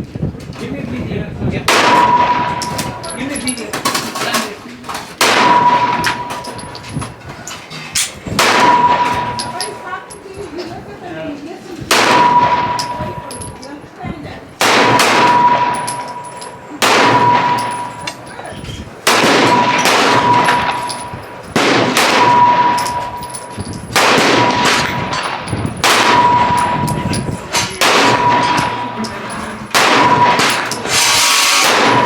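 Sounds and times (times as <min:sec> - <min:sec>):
gunshots with echo: 0:01.6 - 0:03.1, 0:05.2 - 0:06.8, 0:08.3 - 0:09.8, 0:11.9 - 0:13.3, 0:14.6 - 0:18.4, 0:19.0 - 0:32.0
ringing tone: 0:08.6 - 0:09.8, 0:12.2 - 0:13.6, 0:15.2 - 0:18.4, 0:19.5 - 0:21.4, 0:22.2 - 0:24.0, 0:25.2 - 0:30.9.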